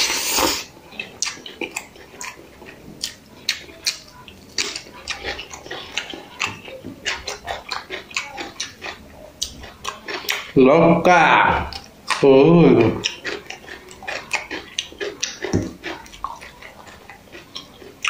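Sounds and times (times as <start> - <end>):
chewing with wet lip smacks: 0.9 - 10.6, 11.7 - 18.0.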